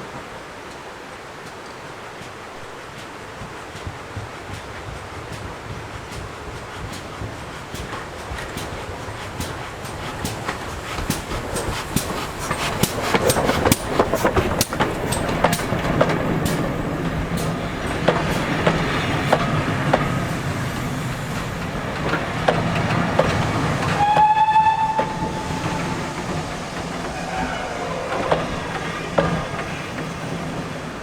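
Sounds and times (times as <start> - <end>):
steam train running past: 0.0 - 31.0
wheels clicking over rail joints: 0.0 - 31.0
train whistle toot: 23.8 - 28.3.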